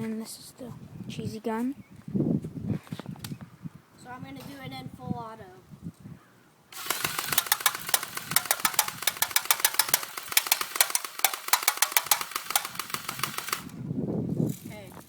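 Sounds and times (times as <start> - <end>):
airsoft gun full-auto burst: 6.8 - 13.8
mechanical whir: 6.8 - 13.8.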